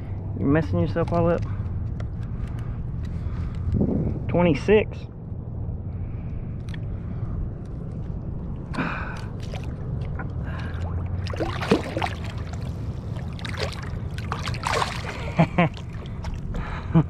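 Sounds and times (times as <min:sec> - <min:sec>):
low wind rumble: 0:00.0 - 0:17.0
water sloshing around kayak: 0:09.2 - 0:16.8.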